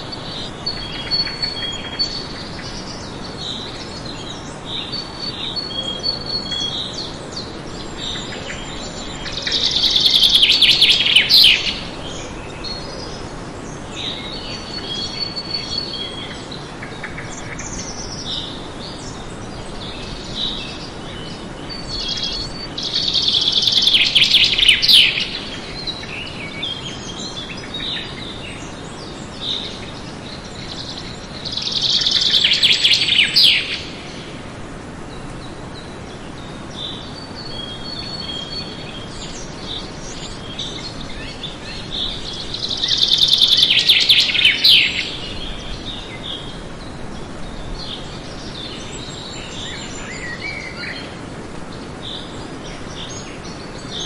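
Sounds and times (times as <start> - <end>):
songbirds singing and chirping: 0.0 - 54.0
steady background hiss: 0.0 - 54.0.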